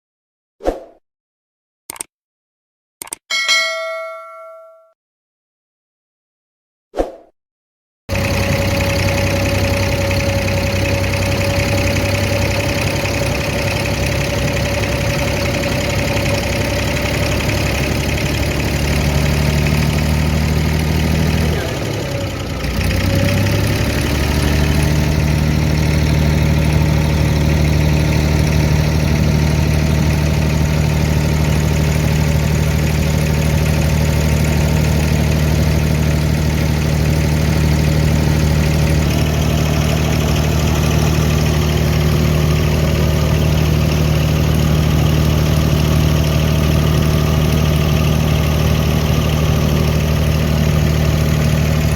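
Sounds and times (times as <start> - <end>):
short click: 1.9 - 2.1, 3.0 - 3.4
boat engine running: 8.1 - 51.9.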